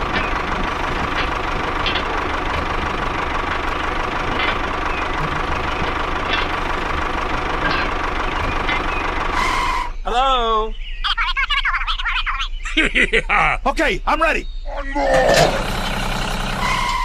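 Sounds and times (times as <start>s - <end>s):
small engine idling: 0.0s - 10.0s, 15.1s - 17.0s.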